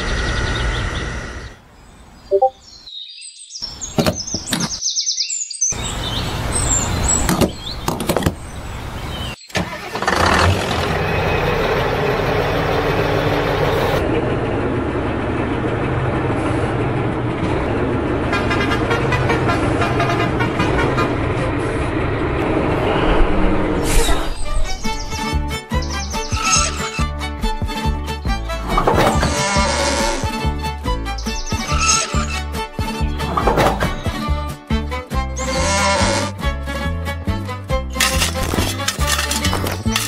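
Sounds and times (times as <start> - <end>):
vehicle engine running: 9.7 - 22.7, 38.0 - 40.0.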